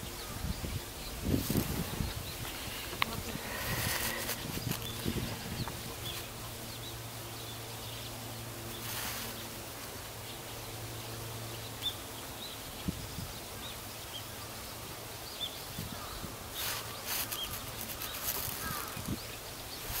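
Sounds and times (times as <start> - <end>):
bursts of hiss: 1.2 - 6.3.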